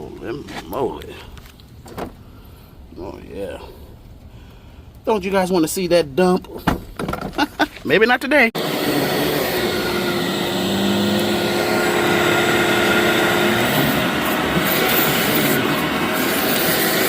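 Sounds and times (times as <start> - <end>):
vacuum cleaner running: 8.6 - 17.0.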